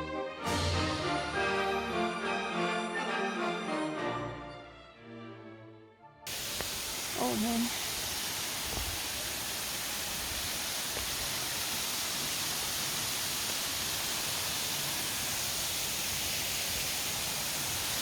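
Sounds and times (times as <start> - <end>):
waterfall roaring: 6.3 - 18.0.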